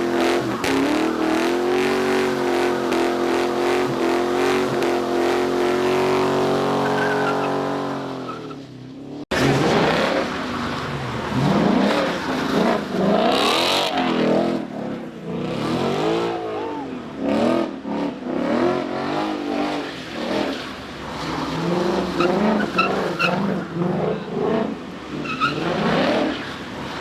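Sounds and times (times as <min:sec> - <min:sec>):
car engine revving: 0:00.0 - 0:08.4, 0:09.2 - 0:27.0
tyre squeal: 0:06.1 - 0:08.6.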